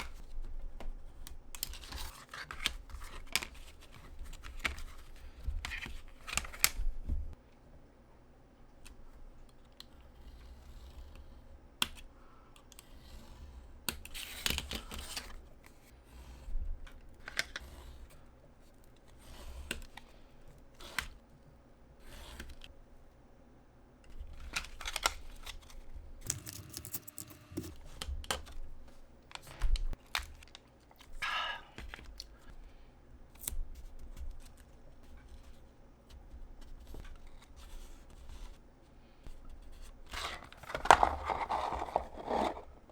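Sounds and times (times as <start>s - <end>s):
craft material rustling: 24.2s - 31.2s, 40.2s - 42.9s
scissors snipping: 26.2s - 27.8s.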